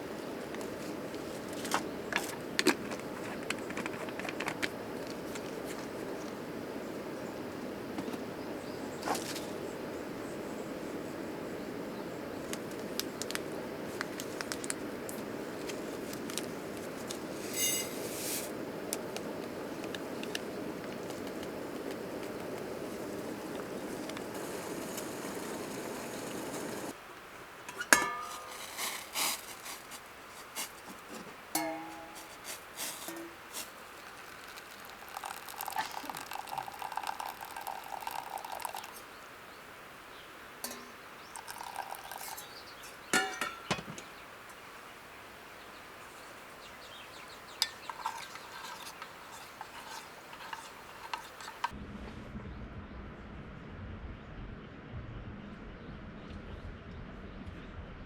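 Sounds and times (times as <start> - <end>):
metal utensils and dishes clinking: 17.5 - 18.0, 27.7 - 28.9, 31.6 - 33.4, 42.2 - 44.0, 47.6 - 51.7
glass clinking: 17.6 - 17.9, 27.9 - 28.5, 31.6 - 32.2, 34.5 - 39.0, 40.6 - 44.0, 47.6 - 49.0
low steady hum: 47.6 - 58.0
low rushing noise: 51.7 - 58.0.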